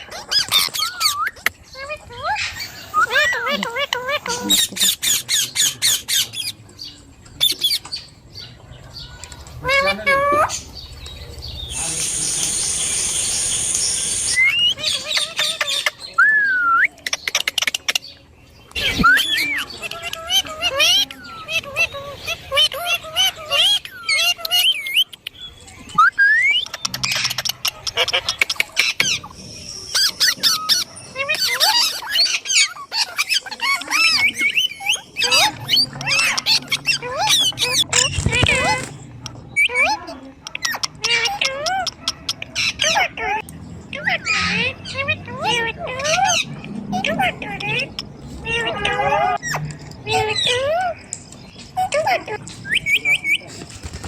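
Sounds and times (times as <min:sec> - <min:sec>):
parrot hissing: 0:11.7 - 0:14.8
parrot whistle: 0:11.8 - 0:14.9
parrot chirps and clicks: 0:16.9 - 0:21.6, 0:22.6 - 0:29.3, 0:29.9 - 0:44.0.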